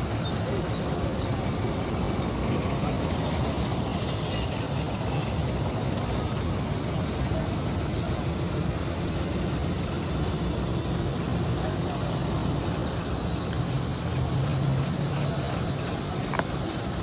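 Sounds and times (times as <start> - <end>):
vehicle road noise rumble: 0.0 - 17.0.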